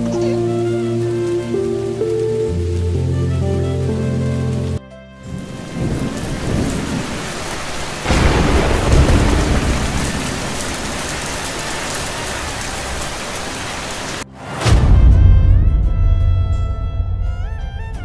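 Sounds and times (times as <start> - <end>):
heavy rain pouring: 0.0 - 15.1
thunder rumbling: 0.0 - 18.0.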